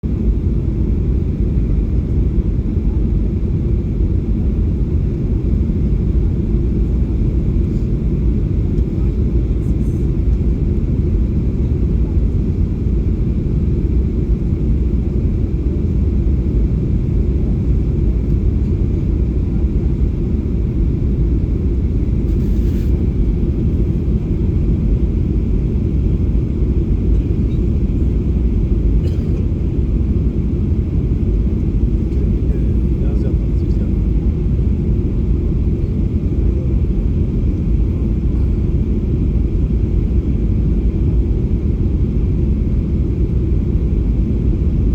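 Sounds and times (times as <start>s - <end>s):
airliner rumbling on approach: 0.0s - 44.9s.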